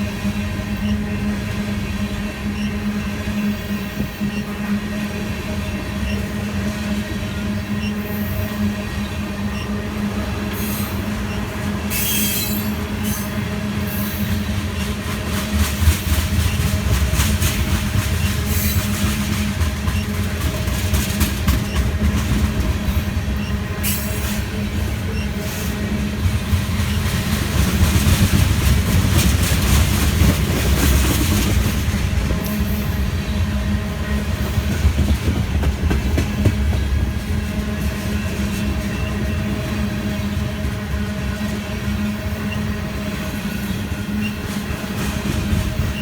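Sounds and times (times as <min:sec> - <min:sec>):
low train rumble: 0:00.0 - 0:46.0
train wheels clacking: 0:10.5 - 0:46.0.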